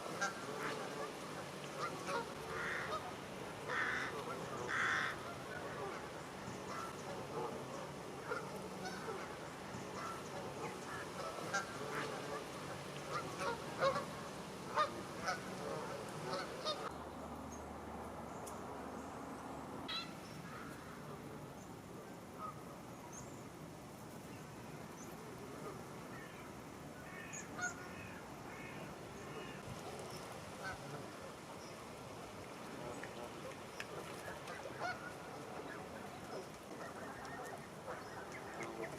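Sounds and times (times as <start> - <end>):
geese honking: 0.0 - 16.9, 19.9 - 20.7, 27.0 - 29.7, 33.0 - 38.9.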